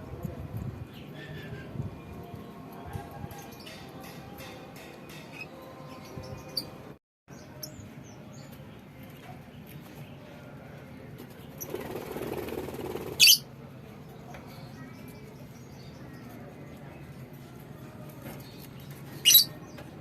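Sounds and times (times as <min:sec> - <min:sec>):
lovebirds squeaking and chirping: 0:03.2 - 0:06.8, 0:13.0 - 0:13.4, 0:18.4 - 0:19.8.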